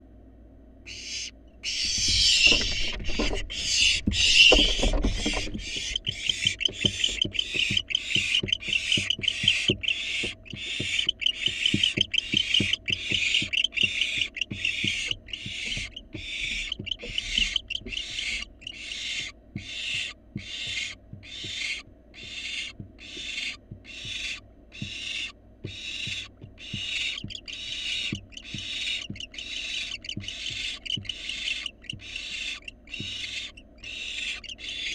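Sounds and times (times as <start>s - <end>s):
owl fledglings hissing begging calls: 0.9s - 34.9s
low thumps: 1.8s - 18.7s.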